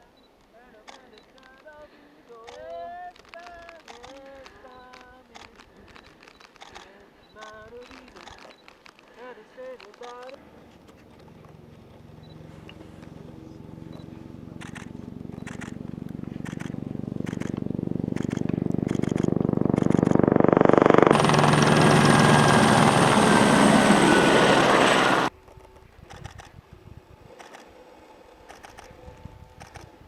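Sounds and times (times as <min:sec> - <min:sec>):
motor engine humming: 0:10.4 - 0:25.3
loud rushing engine noise: 0:12.0 - 0:25.3.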